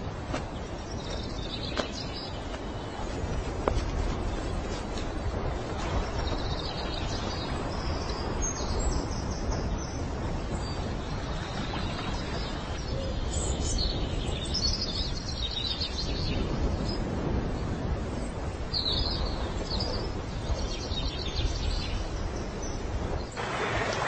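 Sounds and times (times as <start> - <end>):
small birds chirping: 0.4 - 17.0.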